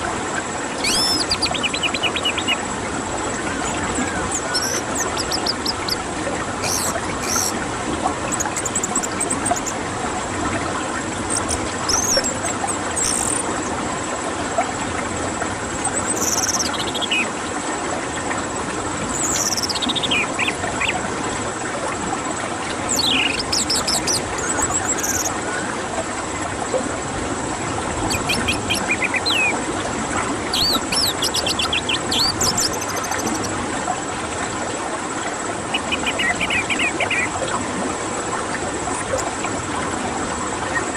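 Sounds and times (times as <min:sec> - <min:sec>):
thrush whistles and trills: 0:00.7 - 0:06.0, 0:06.6 - 0:07.6, 0:08.2 - 0:09.8, 0:11.3 - 0:13.7, 0:15.7 - 0:17.4, 0:19.1 - 0:21.0, 0:22.9 - 0:25.8, 0:28.0 - 0:29.6, 0:30.5 - 0:33.5, 0:35.7 - 0:37.5, 0:40.6 - 0:40.9.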